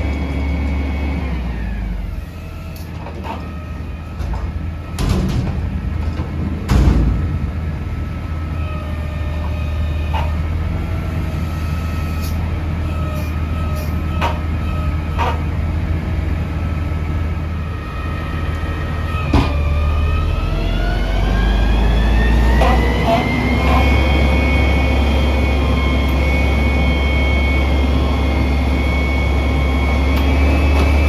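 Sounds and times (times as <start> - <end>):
garbage truck engine rumble: 0.0 - 31.0
sharp metallic knocks: 4.2 - 10.4
rising whine: 23.3 - 31.0.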